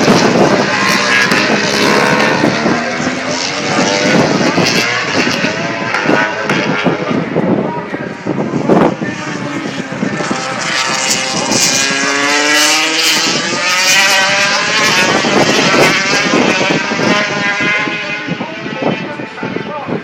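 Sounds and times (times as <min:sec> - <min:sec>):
racing motorcycle engines revving: 0:00.0 - 0:20.0.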